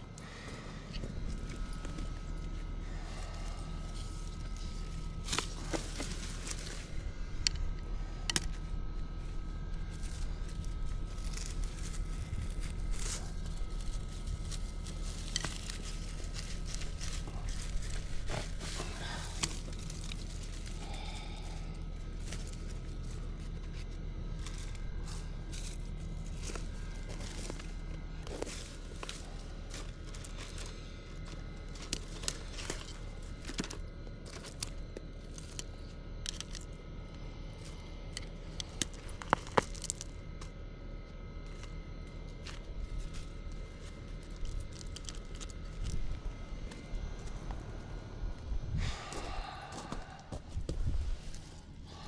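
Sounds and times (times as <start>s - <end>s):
steady low rumble: 0.0s - 52.0s
rustling and crackling of weeds: 0.1s - 52.0s.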